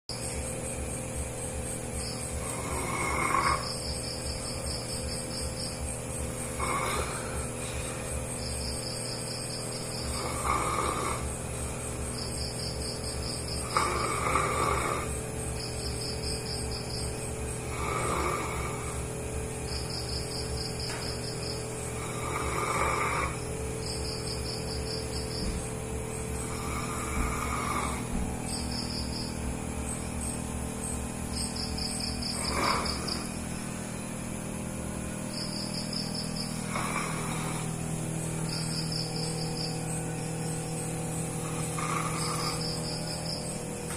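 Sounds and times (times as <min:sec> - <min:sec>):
high-pitched pulsed chirping: 0:00.1 - 0:43.9
dog snoring: 0:00.7 - 0:33.8, 0:34.9 - 0:43.9.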